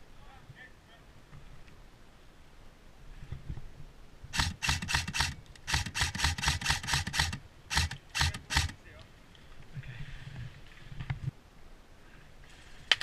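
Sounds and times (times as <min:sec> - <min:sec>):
airsoft gun shots: 0:04.4 - 0:08.8.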